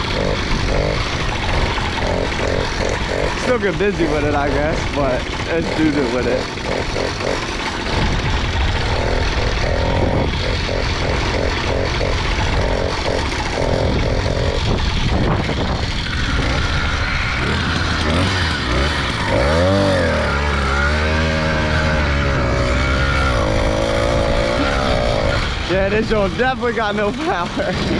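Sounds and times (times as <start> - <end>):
small motorbike engine running: 0.0 - 27.9
wind noise on microphone: 7.8 - 20.0.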